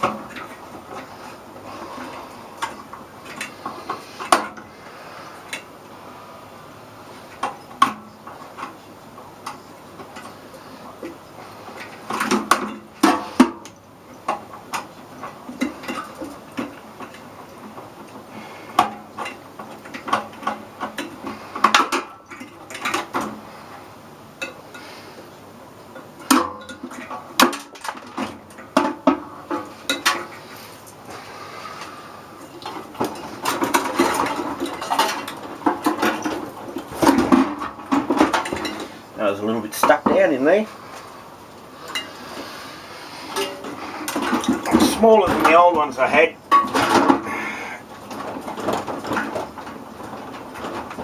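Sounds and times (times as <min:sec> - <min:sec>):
metal clinks and rattles of tools: 0:32.6 - 0:38.9.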